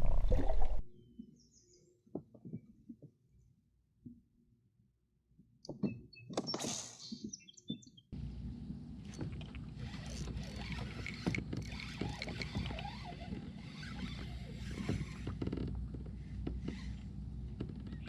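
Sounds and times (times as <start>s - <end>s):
gear knocking in a boat: 9.0s - 18.0s.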